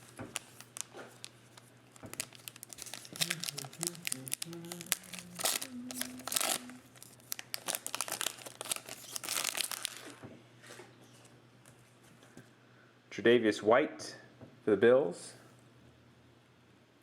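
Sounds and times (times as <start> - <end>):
plastic wrappers crinkling and tearing: 0.0 - 10.2.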